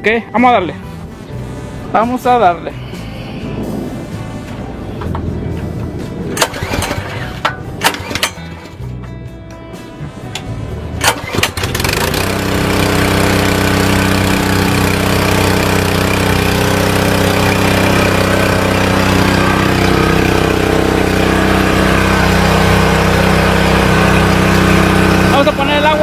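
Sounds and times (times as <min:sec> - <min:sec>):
pressure washer engine running: 0:04.7 - 0:08.8, 0:11.0 - 0:26.0
pull-start knocks: 0:06.3 - 0:08.8, 0:10.4 - 0:25.4.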